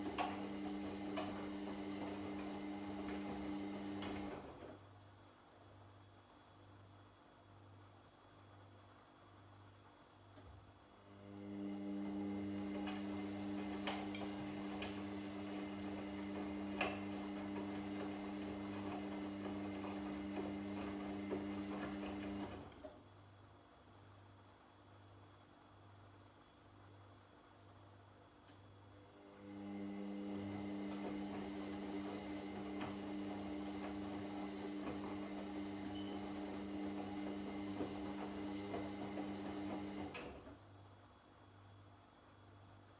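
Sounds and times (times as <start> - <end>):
washing machine humming: 0.0 - 4.9, 11.0 - 23.0, 29.0 - 40.7.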